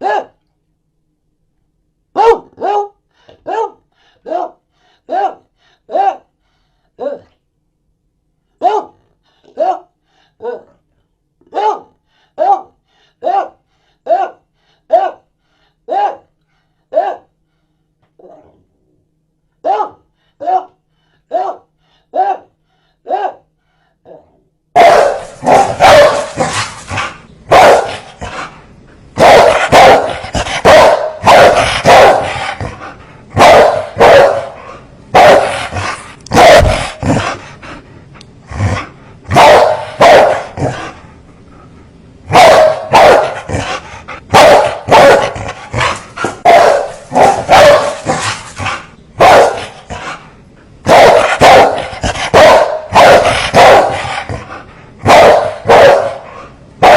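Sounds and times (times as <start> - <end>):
large dog barking fiercely: 2.2 - 6.3, 8.6 - 10.6, 11.5 - 15.2, 19.6 - 22.5, 24.8 - 28.6, 29.2 - 37.5, 39.3 - 41.0, 42.3 - 50.2, 50.8 - 56.9.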